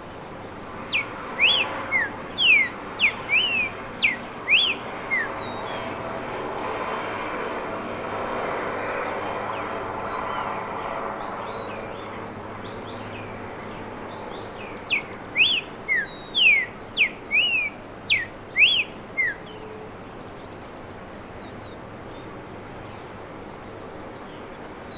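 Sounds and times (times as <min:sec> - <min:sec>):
bird singing whistled notes: 0:00.9 - 0:05.7, 0:14.5 - 0:19.8
faint bird chirps: 0:14.9 - 0:19.8.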